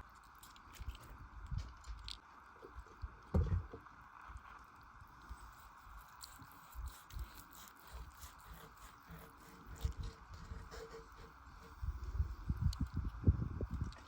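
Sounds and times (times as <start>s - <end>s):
small wet clicks: 0.0s - 8.9s, 12.6s - 14.0s.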